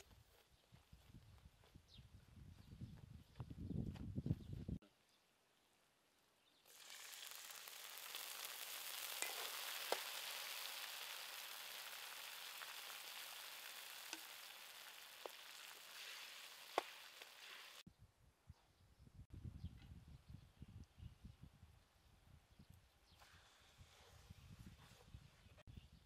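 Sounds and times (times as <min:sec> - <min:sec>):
sauce sizzling in a wok: 0:06.7 - 0:17.8.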